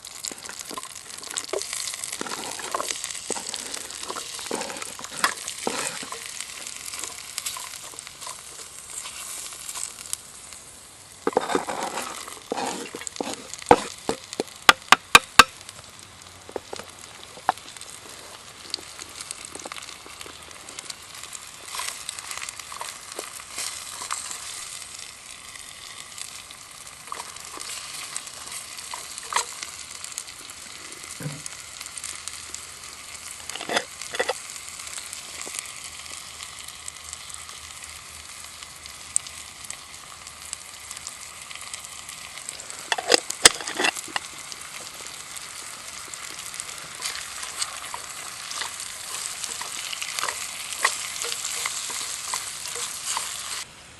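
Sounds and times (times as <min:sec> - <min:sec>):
food sizzling in a pan: 0:00.0 - 0:53.9.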